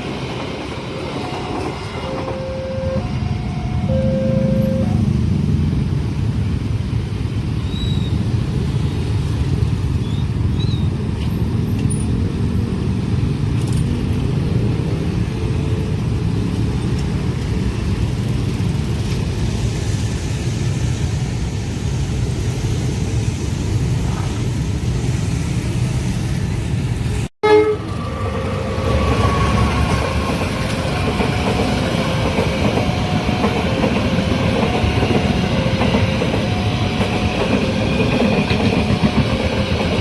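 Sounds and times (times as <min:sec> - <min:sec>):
road vehicles rumbling: 0:00.0 - 0:40.0
horn sounding: 0:02.0 - 0:05.2, 0:27.4 - 0:28.1.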